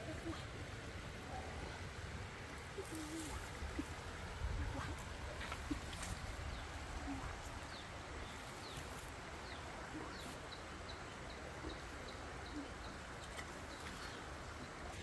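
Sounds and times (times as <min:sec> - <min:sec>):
background hiss: 0:00.0 - 0:15.0
bird chirping: 0:04.6 - 0:15.0.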